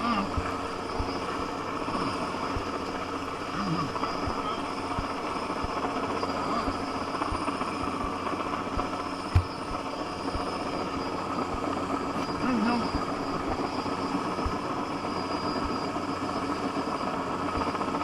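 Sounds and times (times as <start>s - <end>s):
helicopter engine and rotor: 0.0s - 18.0s
sharp knock: 9.3s - 9.6s.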